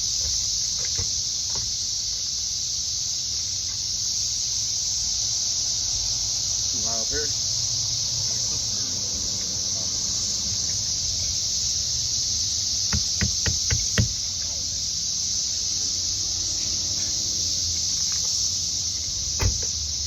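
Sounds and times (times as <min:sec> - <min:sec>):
cicadas chorus hissing: 0:00.0 - 0:20.0
sharp knocks: 0:12.9 - 0:14.2, 0:19.4 - 0:19.7.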